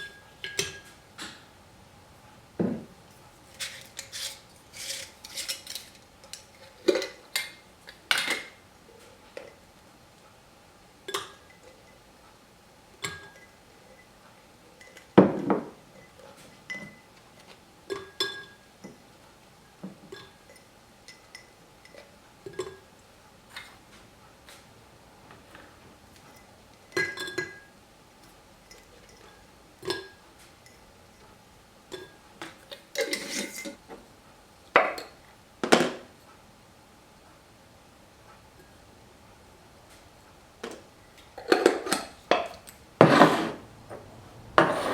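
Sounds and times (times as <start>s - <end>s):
glass jar and utensils clinking: 3.6s - 8.6s, 14.8s - 16.1s, 16.7s - 17.1s, 17.9s - 19.0s, 26.3s - 27.7s, 28.7s - 30.8s, 33.0s - 33.8s.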